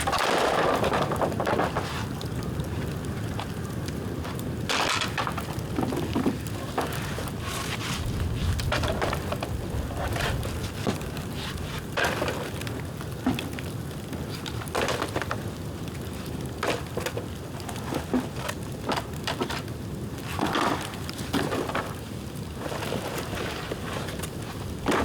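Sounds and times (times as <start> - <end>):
bamboo bonfire crackling: 0.0 - 25.0.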